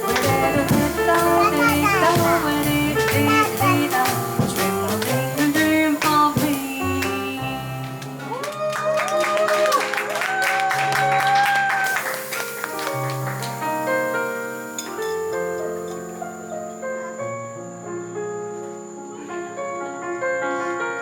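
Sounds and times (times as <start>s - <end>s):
light drum and cymbal strokes: 0.0s - 7.6s, 12.0s - 16.9s
walking bass line: 0.0s - 7.8s
piano chords: 0.0s - 21.0s.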